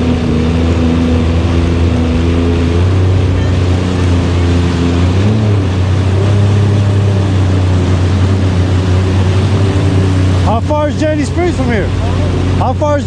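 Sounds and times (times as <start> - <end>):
jet ski engine humming: 0.0 - 13.0
water rushing: 0.0 - 13.0
wind: 0.0 - 13.0.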